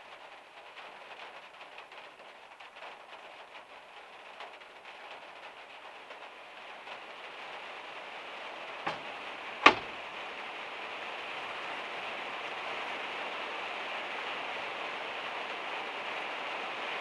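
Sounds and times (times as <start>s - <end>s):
rain drumming on a metal roof: 0.0s - 17.0s
sharp knocks: 8.9s - 9.9s.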